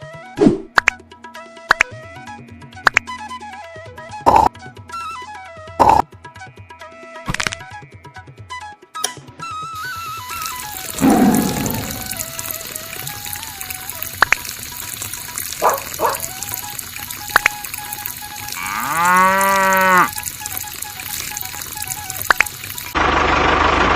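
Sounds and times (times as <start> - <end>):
cow mooing: 10.8 - 12.9, 18.6 - 20.2
sharp clicks: 21.1 - 22.9.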